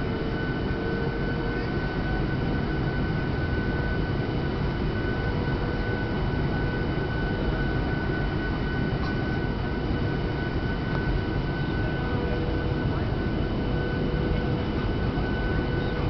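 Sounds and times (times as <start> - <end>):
high jet engine whine: 0.0 - 16.0
low rumble of engines and airflow: 0.0 - 16.0.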